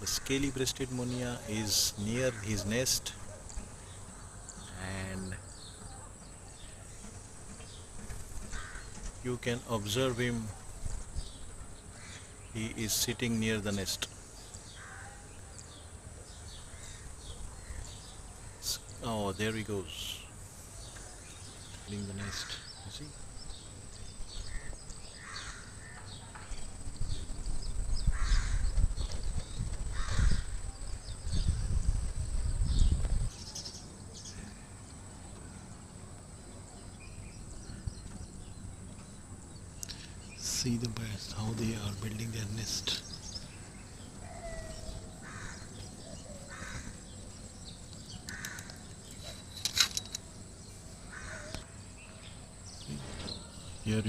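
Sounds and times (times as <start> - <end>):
harsh bird calls: 0.0 - 54.0
outdoor background noise: 0.0 - 54.0
small birds chirping: 0.0 - 54.0
low rumbling on microphone: 26.6 - 33.3.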